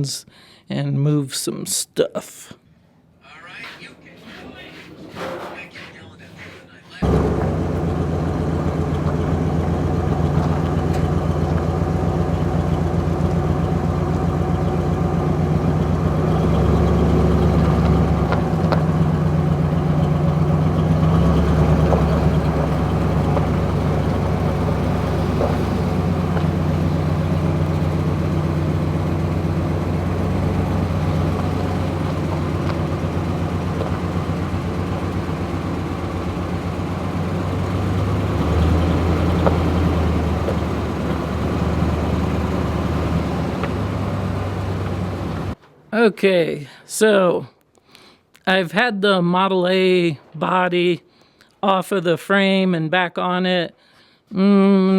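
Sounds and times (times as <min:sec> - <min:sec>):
vehicle engine idling: 0:05.6 - 0:45.6.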